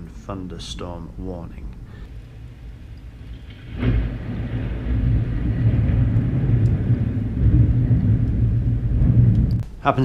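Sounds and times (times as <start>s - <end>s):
rolling thunder: 2.1s - 9.6s.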